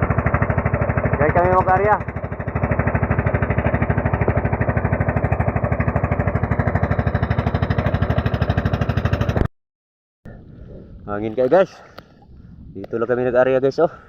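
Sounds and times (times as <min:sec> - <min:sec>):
small boat engine running: 0:00.0 - 0:09.5.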